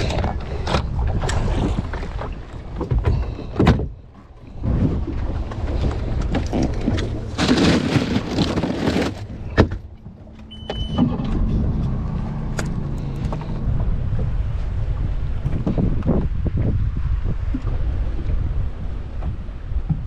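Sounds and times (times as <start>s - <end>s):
boat motor running: 0.0s - 20.0s
wind buffeting microphone: 0.0s - 20.0s
brief high tone: 10.5s - 11.1s.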